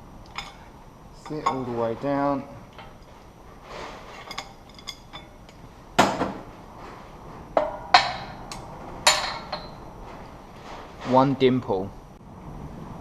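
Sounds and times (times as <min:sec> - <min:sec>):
ringing metal clank: 0:00.3 - 0:01.7, 0:04.1 - 0:05.5, 0:07.6 - 0:09.9.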